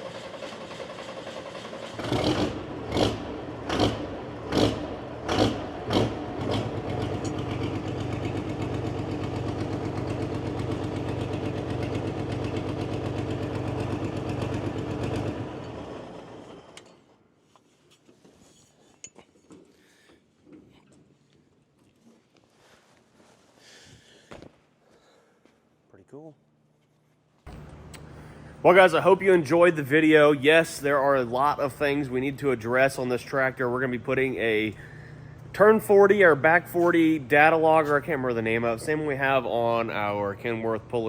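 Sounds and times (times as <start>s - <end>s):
diesel tractor engine running: 0.0s - 16.8s, 27.5s - 41.0s.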